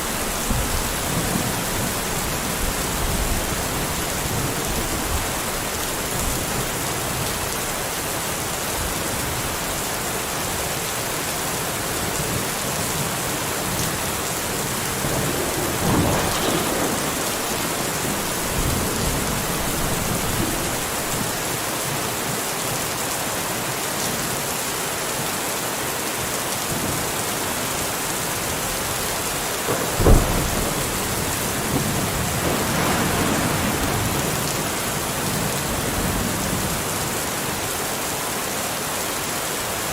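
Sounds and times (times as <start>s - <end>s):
thunder rumble: 0.0s - 7.8s, 13.2s - 21.7s, 28.8s - 36.8s
heavy rain: 0.0s - 39.9s
sharp thunder crack: 14.3s - 21.6s, 29.7s - 36.2s.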